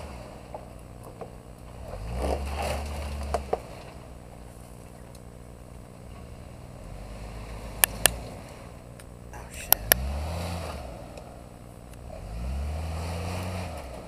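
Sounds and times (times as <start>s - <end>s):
engine revving: 0.0s - 0.6s, 1.7s - 4.1s, 6.1s - 14.0s
tyres working through mud: 0.0s - 14.0s.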